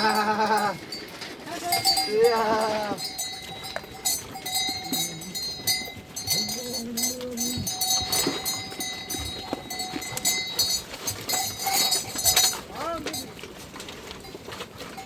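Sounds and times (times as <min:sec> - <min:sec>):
long low bleat: 0:00.0 - 0:00.8, 0:01.6 - 0:03.0, 0:06.3 - 0:07.8
animal neck bells clinking: 0:00.0 - 0:15.0.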